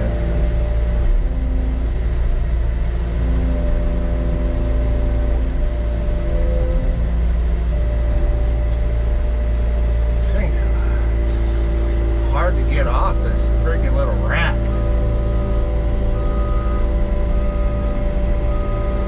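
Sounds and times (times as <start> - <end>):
skid steer diesel engine under load: 0.0 - 19.0.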